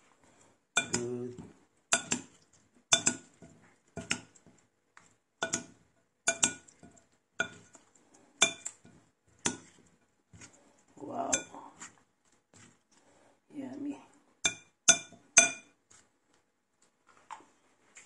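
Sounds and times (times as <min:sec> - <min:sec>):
utensil clinking against bowl: 0:00.8 - 0:02.3, 0:02.9 - 0:04.5, 0:05.4 - 0:07.8, 0:08.4 - 0:09.8, 0:14.4 - 0:15.8.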